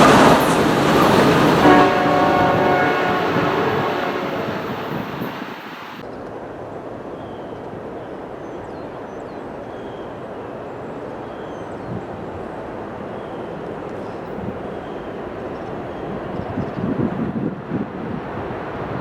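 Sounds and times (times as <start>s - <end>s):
train wheels rumbling on rail: 0.0s - 6.0s.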